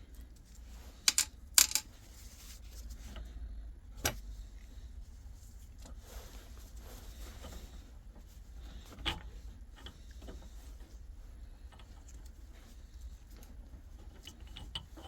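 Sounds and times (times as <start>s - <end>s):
metal parts clinking: 1.1s - 1.9s.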